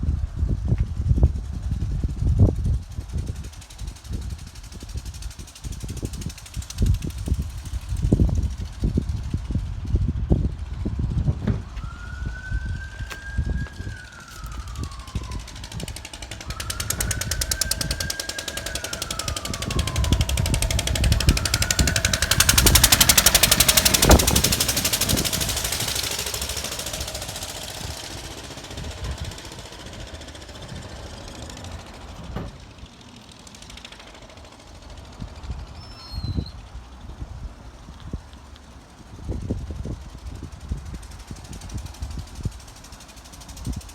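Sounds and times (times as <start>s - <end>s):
stationary engine thudding: 6.8s - 35.8s
vehicle passing: 10.5s - 35.7s
siren wailing: 11.8s - 31.0s.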